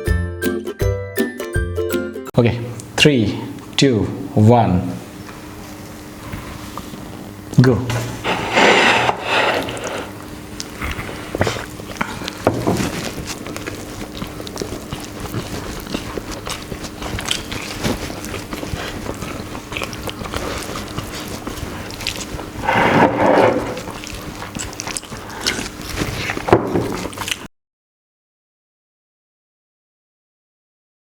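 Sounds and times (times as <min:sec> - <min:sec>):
people chewing and biting: 0:08.0 - 0:27.5
plates clattering: 0:08.2 - 0:10.2, 0:22.6 - 0:23.9.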